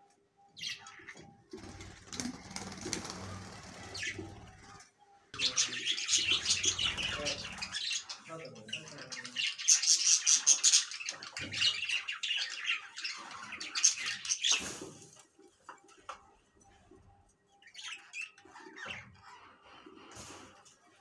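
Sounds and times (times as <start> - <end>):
bird squawking: 5.4 - 14.6.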